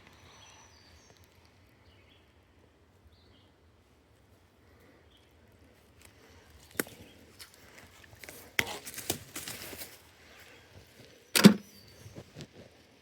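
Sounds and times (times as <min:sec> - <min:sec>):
sharp clicks and knocks: 0:11.4 - 0:11.7.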